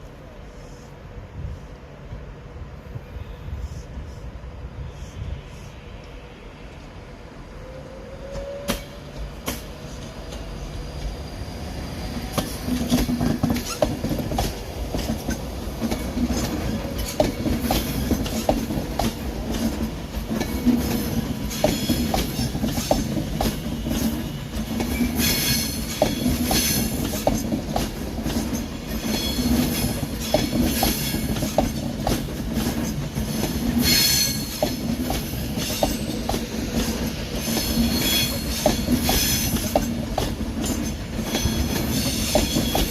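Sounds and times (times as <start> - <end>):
low train rumble: 0.0 - 42.9
train wheel clicks over rail joints: 12.3 - 42.9
high wheel squeal: 37.4 - 39.6.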